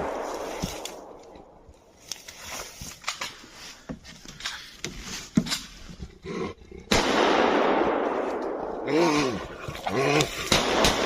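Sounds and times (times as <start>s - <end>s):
rough animal roar: 8.8s - 10.5s.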